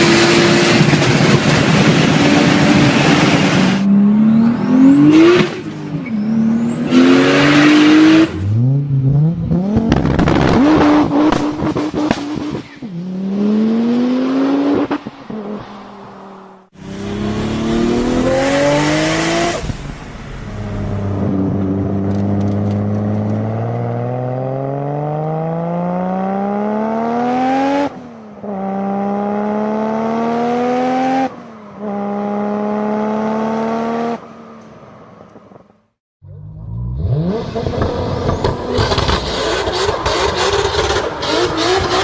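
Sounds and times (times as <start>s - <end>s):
turbocharged car engine accelerating: 0.0s - 34.2s, 36.3s - 42.0s.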